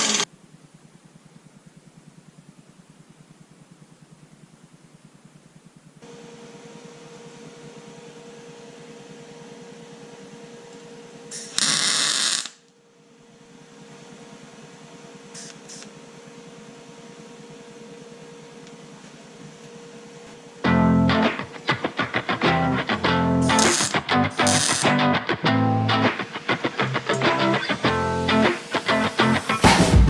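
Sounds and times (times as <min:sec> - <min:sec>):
small motor humming: 0:00.0 - 0:00.3, 0:21.6 - 0:29.6
loud hiss: 0:21.3 - 0:30.0.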